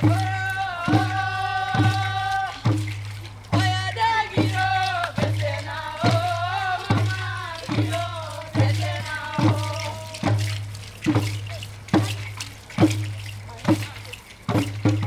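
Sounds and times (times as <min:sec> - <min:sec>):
voices singing together: 0:00.0 - 0:12.2
steady drum beat: 0:00.0 - 0:15.0.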